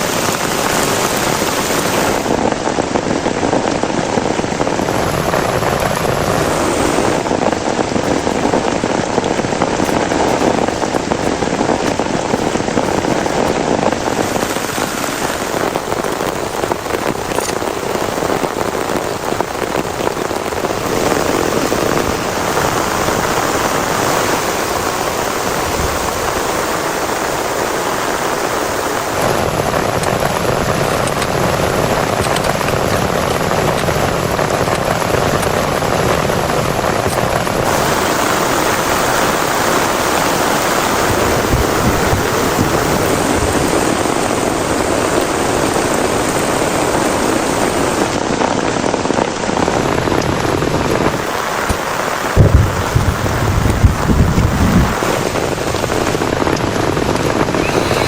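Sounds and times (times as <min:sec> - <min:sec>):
heavy rain: 0:00.0 - 0:58.0
low rolls of thunder: 0:52.4 - 0:56.0.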